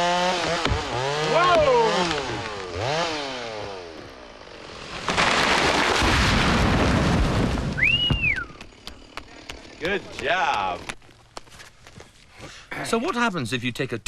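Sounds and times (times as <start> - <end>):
chainsaw revving: 0.0 - 5.0, 8.6 - 10.9
tree crashing to the ground: 4.5 - 8.6
whistle-like tone: 7.8 - 8.6.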